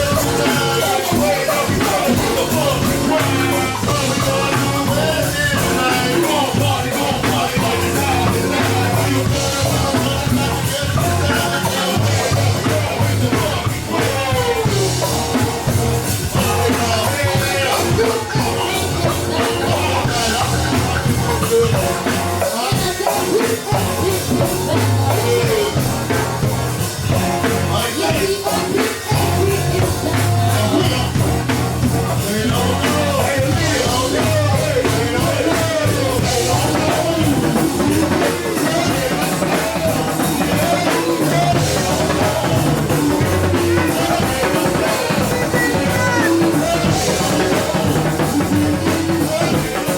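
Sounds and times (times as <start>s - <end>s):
drum kit: 0.0s - 49.9s
live rock band playing: 0.0s - 49.9s
person singing: 0.0s - 49.9s.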